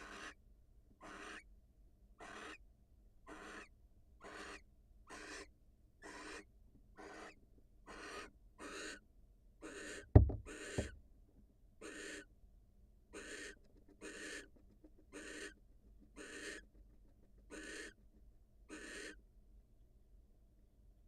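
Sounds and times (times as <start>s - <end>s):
owl rasping hiss calls: 0.0s - 0.4s, 1.0s - 1.4s, 2.2s - 2.6s, 3.3s - 9.0s, 9.6s - 10.8s, 11.8s - 12.3s, 13.2s - 14.5s, 15.1s - 15.6s, 16.2s - 16.6s, 17.5s - 18.0s, 18.7s - 19.2s
loud low thump: 10.2s - 10.9s
small knock: 10.2s - 11.0s.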